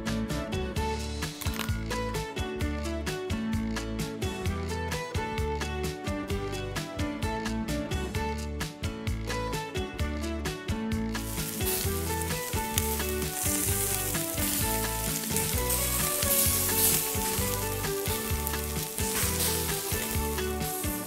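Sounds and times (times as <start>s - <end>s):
background music: 0.0s - 21.0s
beef sizzling on charcoal grill: 11.1s - 21.0s.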